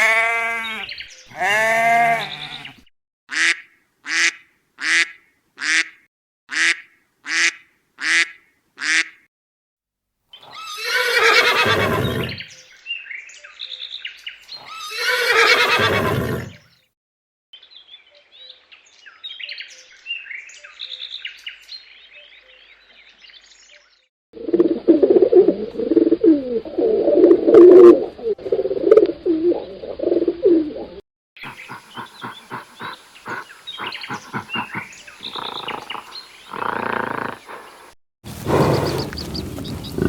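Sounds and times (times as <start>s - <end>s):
birds chirping: 0.6s - 2.8s, 11.6s - 12.8s, 31.4s - 40.0s
rapid repeated animal calls: 31.4s - 40.0s
low wavering animal call: 31.5s - 40.0s.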